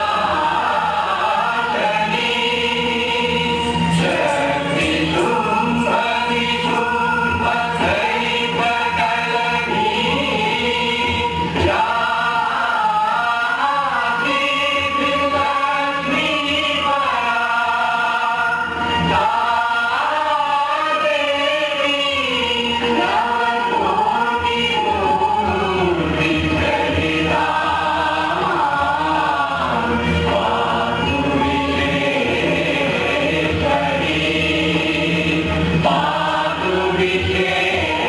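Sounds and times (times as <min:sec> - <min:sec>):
steady held drone: 0:00.0 - 0:17.3
choir singing sustained notes: 0:00.0 - 0:38.0.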